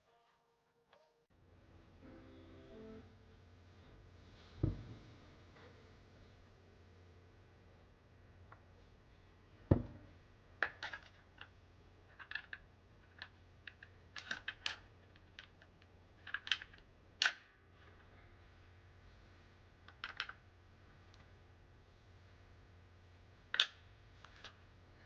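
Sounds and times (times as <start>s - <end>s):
heavy knock: 4.6s - 5.1s, 9.7s - 10.0s.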